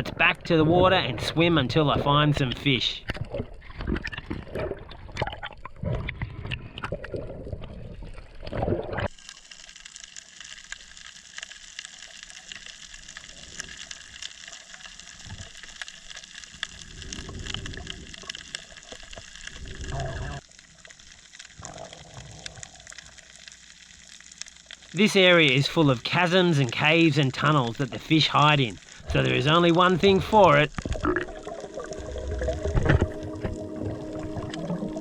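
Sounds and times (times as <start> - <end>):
water splashing and sloshing: 0.0 - 24.9, 30.0 - 35.0
underwater hiss with crackling clicks: 9.0 - 35.0.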